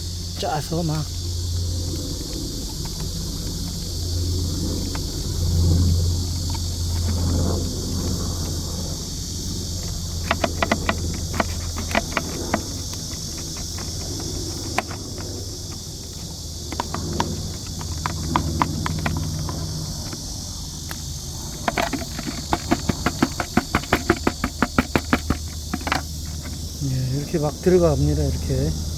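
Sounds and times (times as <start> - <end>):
low hum: 0.0 - 26.9
insect drone: 0.0 - 28.9
stick tapping plastic bottle: 9.8 - 20.2, 20.9 - 26.6.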